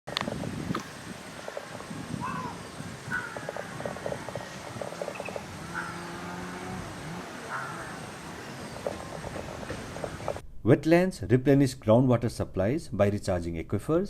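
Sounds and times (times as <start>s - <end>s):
animal sounds and clicks: 0.1s - 6.0s
short bird calls: 0.8s - 10.4s.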